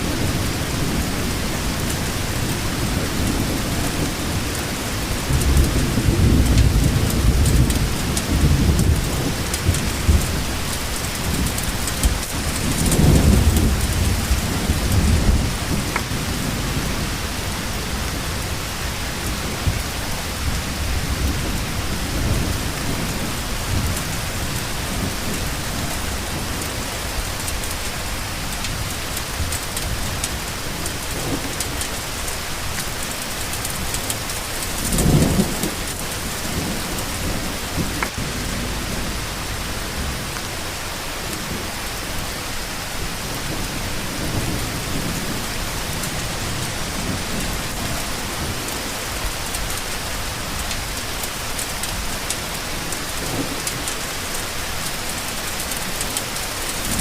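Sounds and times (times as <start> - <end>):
thunder rolling: 0.0 - 18.6, 33.3 - 40.4
steady rain: 0.0 - 57.0.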